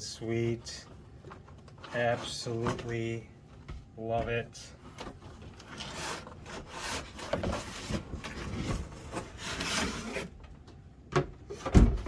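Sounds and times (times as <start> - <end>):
cardboard and plastic scraping: 0.5 - 3.2, 4.3 - 10.6.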